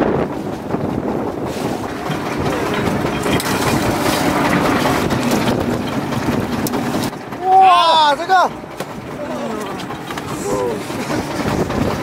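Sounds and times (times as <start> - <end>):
boat engine running: 0.0 - 12.0
wind buffeting microphone: 0.0 - 12.0
knocks and clatter of gear: 1.8 - 7.5, 8.2 - 12.0.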